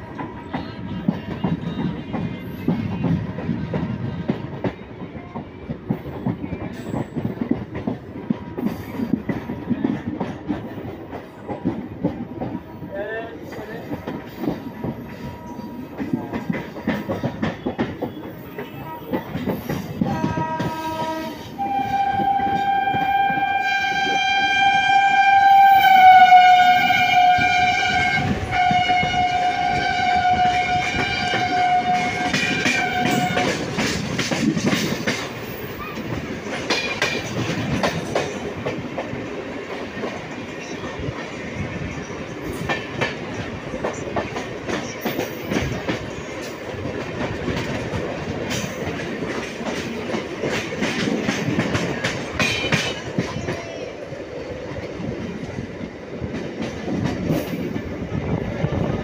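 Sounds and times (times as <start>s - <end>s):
train rumble and clickety-clack: 0.0s - 59.0s
train horn: 15.2s - 16.2s, 16.9s - 34.0s.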